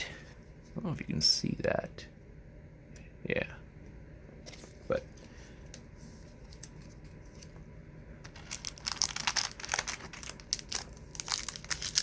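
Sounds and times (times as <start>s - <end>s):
packaging crinkling: 8.3s - 12.0s.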